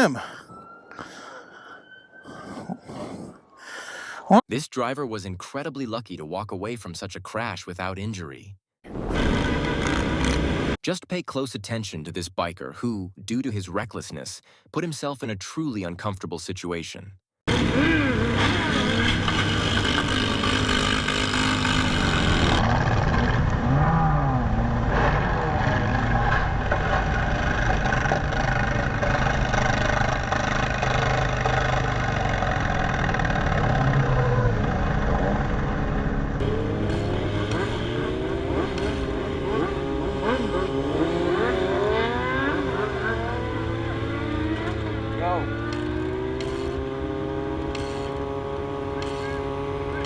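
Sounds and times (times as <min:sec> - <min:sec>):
road traffic engine noise: 0:08.9 - 0:10.8, 0:17.5 - 0:50.0
motorcycle engine revving: 0:09.0 - 0:10.8, 0:17.5 - 0:50.0.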